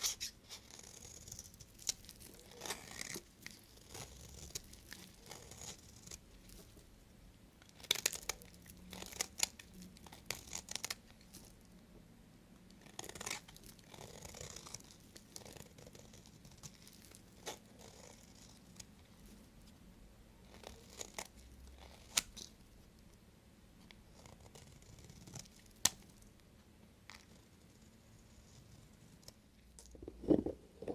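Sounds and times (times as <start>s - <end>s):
knife cutting soap: 0.0s - 6.5s.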